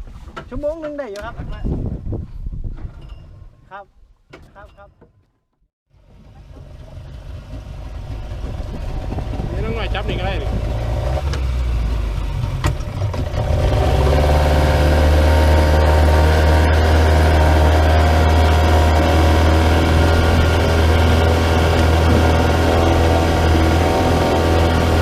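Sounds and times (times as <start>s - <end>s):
engine droning: 5.9s - 25.0s.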